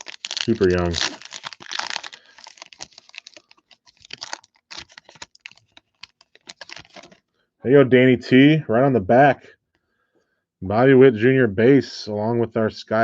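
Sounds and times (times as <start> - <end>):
trading cards clicking and rustling: 0.0 - 7.2.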